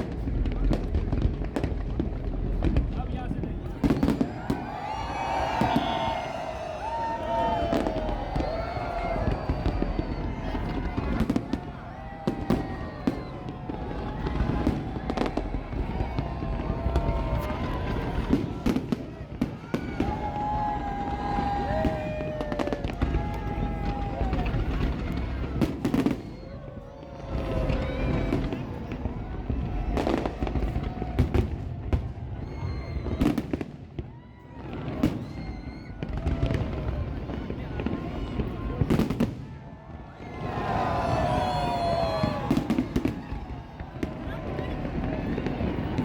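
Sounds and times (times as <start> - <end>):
fireworks bangs: 0.0 - 46.0
low rumble of fireworks: 0.0 - 46.0.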